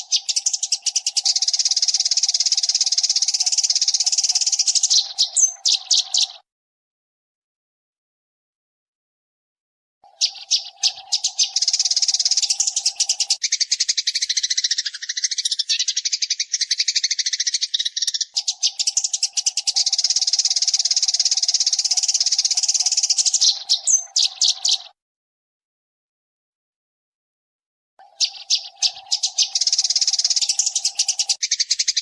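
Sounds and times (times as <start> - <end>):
sparrow chattering: 0.0 - 6.4, 10.0 - 25.0, 28.0 - 32.0.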